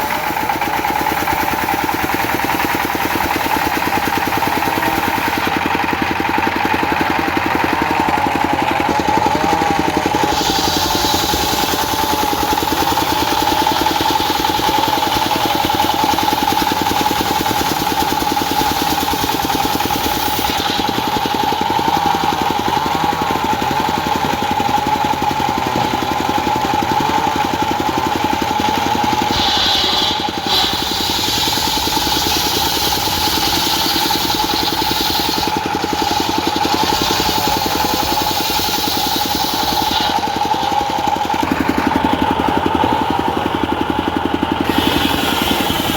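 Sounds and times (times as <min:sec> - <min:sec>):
circular saw blade whine: 0:00.0 - 0:45.9
diesel engine pulsing: 0:00.0 - 0:45.9.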